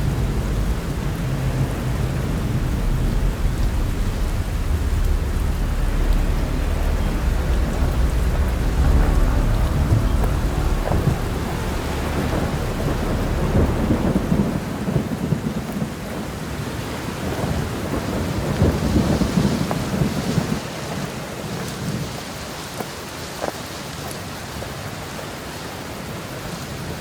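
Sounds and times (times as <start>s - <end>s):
rolling thunder: 0.0s - 21.0s
steady rain: 0.0s - 27.0s.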